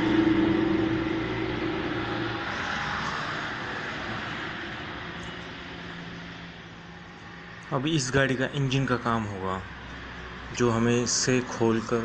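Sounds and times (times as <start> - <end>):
rushing noise: 0.0 - 8.4
vehicle engine passing: 0.0 - 12.0.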